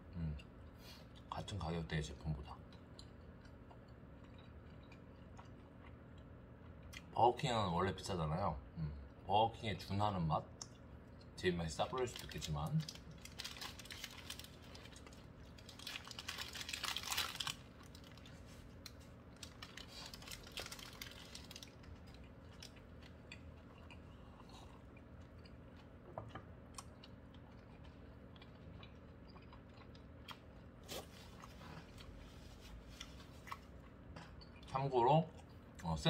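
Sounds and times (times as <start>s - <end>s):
faint chewing: 2.4s - 7.1s, 12.0s - 35.9s
paper wrapper rustling: 12.1s - 21.8s.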